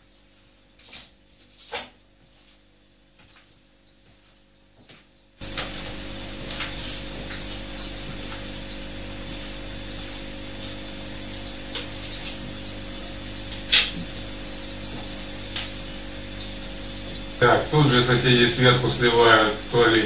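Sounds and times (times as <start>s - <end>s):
loud steady hiss: 5.4s - 20.0s.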